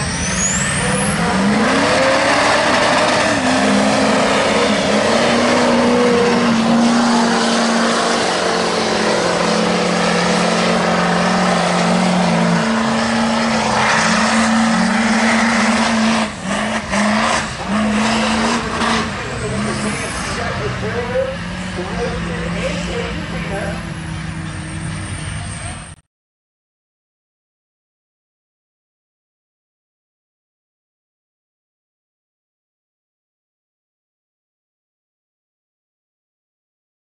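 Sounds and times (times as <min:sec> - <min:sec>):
diesel truck engines racing: 0:00.0 - 0:26.0.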